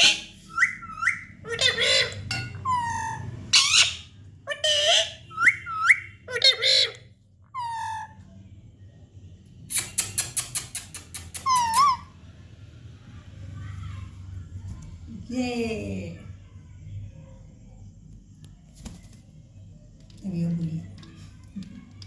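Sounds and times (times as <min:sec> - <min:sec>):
parrot chirping: 0:00.0 - 0:08.2, 0:09.7 - 0:12.1
parrot squawking: 0:00.0 - 0:08.2, 0:11.4 - 0:12.1.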